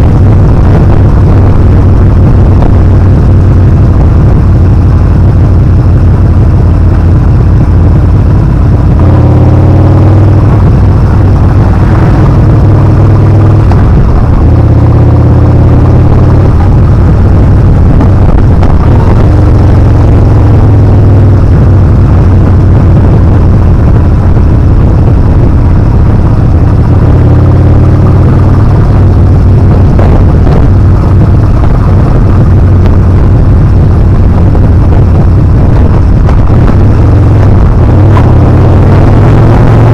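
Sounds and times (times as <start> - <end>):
motorcycle engine revving: 0.0 - 39.9
wind rush on microphone: 0.0 - 39.9.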